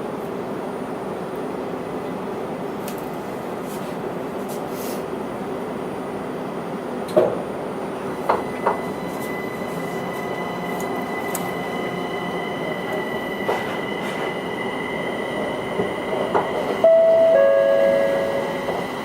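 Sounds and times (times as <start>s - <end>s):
steady mechanical hum: 0.0s - 19.0s
high whine: 16.7s - 19.0s.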